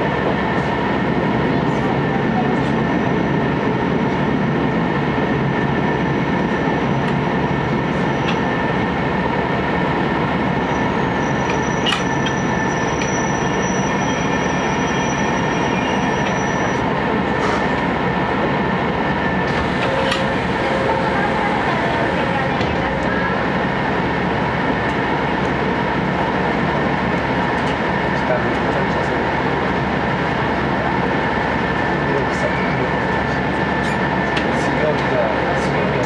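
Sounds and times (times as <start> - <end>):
railcar engine rumble: 0.0 - 36.0
high brake squeal: 10.6 - 17.7, 32.3 - 33.0.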